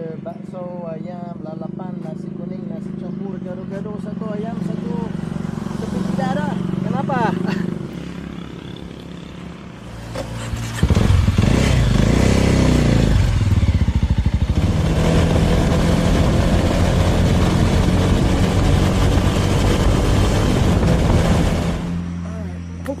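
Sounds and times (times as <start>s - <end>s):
motorcycle engine revving: 1.3s - 23.0s.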